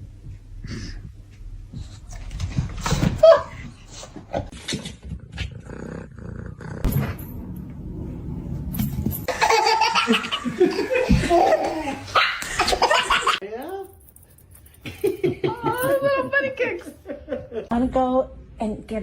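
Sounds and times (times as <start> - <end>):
person laughing hard: 15.0 - 16.2.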